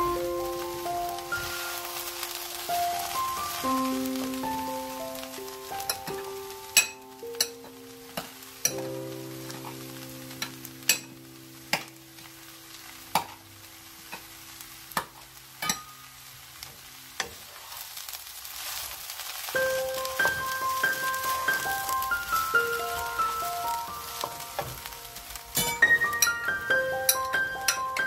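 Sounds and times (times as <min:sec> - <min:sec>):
food sizzling in a frying pan: 0:00.0 - 0:28.0
sharp crackling pops: 0:00.0 - 0:28.0
soft background music: 0:00.0 - 0:28.0.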